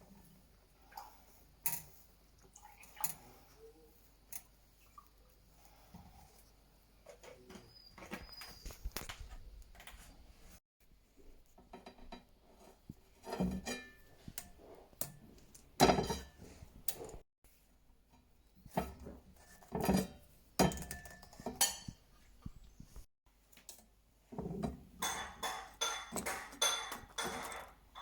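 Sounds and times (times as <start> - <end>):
hard objects knocking and clinking: 25.0 - 28.0.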